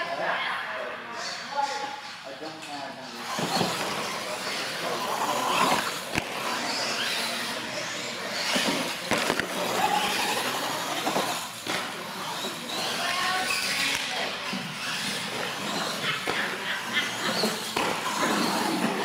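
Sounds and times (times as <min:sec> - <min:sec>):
toy truck motors whining: 0:03.1 - 0:19.0
tyres rolling on concrete: 0:14.6 - 0:19.0.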